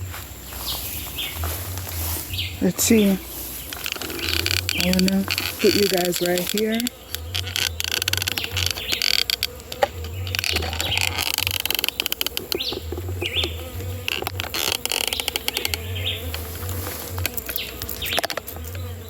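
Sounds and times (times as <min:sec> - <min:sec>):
bees buzzing: 0:00.0 - 0:19.0
small birds chirping: 0:00.0 - 0:19.0
sharp clicks: 0:03.7 - 0:16.4.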